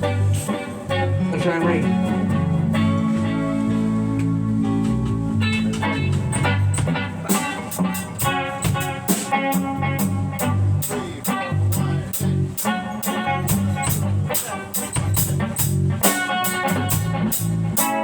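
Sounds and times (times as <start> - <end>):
band playing: 0.0 - 18.0.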